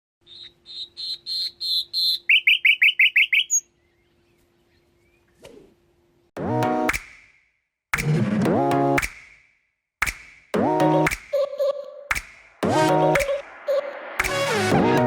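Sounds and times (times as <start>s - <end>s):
songbird singing: 0.2s - 5.4s.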